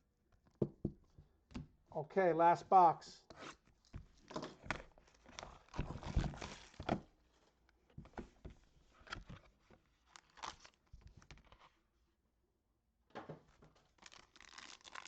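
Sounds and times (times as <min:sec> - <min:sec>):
wrapping crinkling and tearing: 0:04.6 - 0:06.8, 0:09.9 - 0:11.7, 0:13.8 - 0:15.0
cards rustling: 0:13.8 - 0:15.0.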